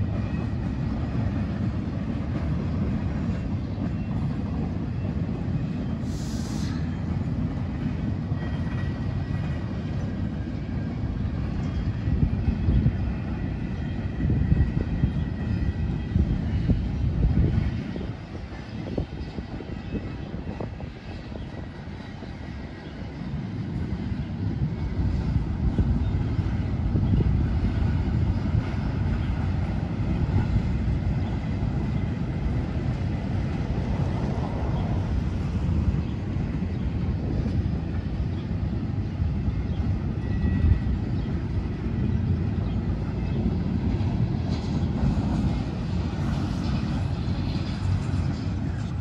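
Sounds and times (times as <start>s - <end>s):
freight train wheels rumbling: 0.0s - 49.0s.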